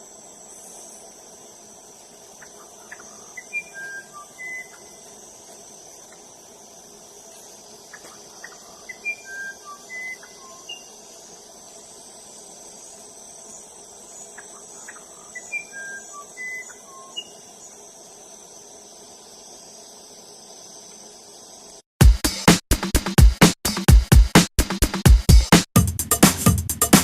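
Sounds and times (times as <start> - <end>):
high insect trill: 0.0 - 21.9
bird singing whistled notes: 2.9 - 5.0, 7.9 - 11.0, 14.4 - 17.5.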